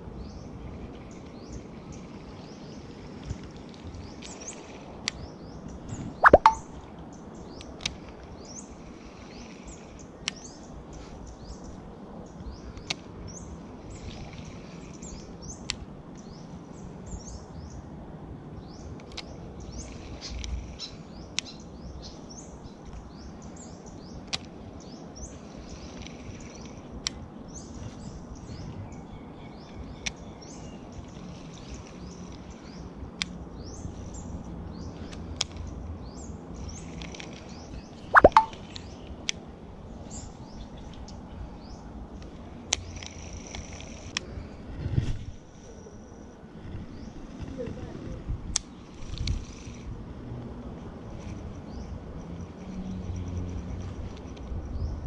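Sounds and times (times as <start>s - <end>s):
small birds chirping: 0.0s - 17.9s, 18.6s - 42.1s
sharp click: 6.2s - 6.6s, 38.2s - 38.6s.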